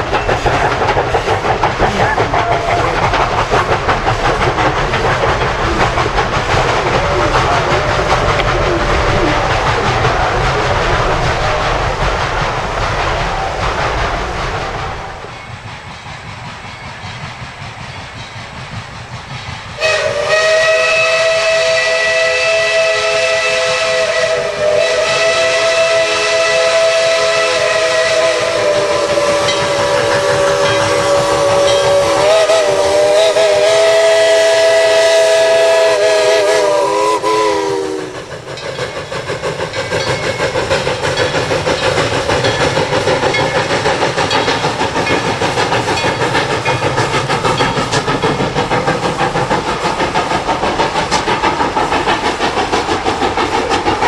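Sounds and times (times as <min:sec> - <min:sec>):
train rumbling and hissing: 0:00.0 - 0:54.0
steam locomotive whistle: 0:19.8 - 0:38.6.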